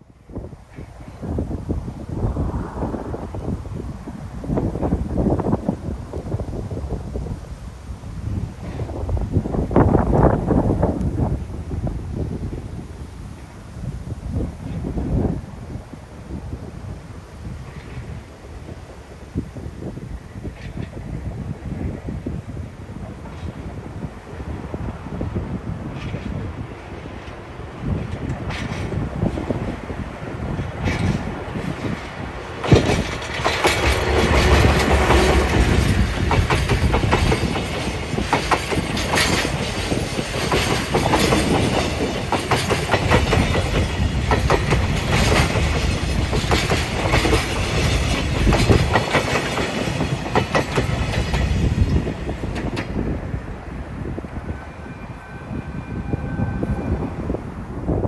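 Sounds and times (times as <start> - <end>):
deep rumble of wagons: 14.0 - 58.0
train wheels clattering over rail joints: 25.8 - 53.6.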